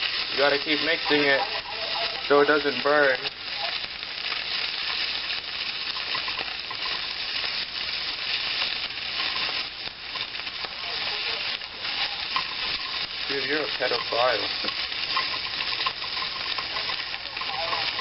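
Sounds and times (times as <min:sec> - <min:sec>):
meat sizzling in a pan: 0:00.0 - 0:18.0
spoon stirring and scraping: 0:11.3 - 0:18.0.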